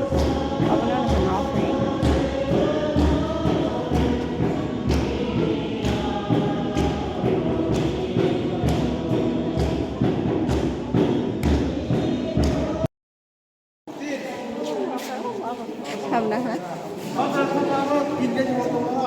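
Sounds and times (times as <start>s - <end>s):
choir singing: 0.0s - 12.9s
steady drum beat: 0.0s - 12.9s.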